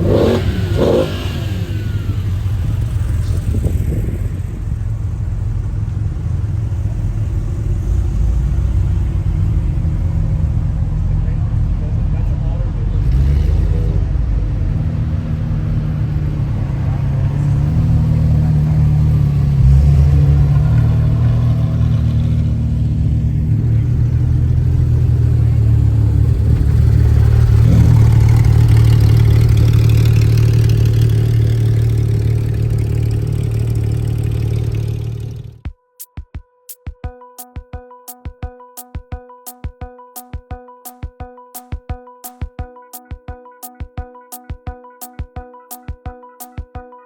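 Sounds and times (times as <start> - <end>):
car engines driving past: 0.0 - 35.6.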